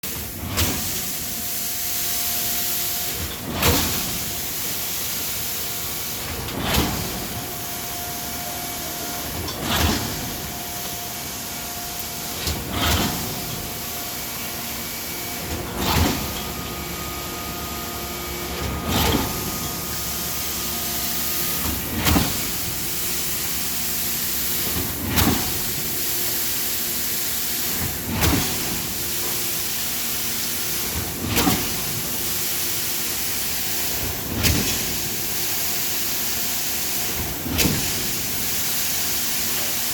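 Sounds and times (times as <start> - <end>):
concrete pump thumps: 21.4 - 23.1.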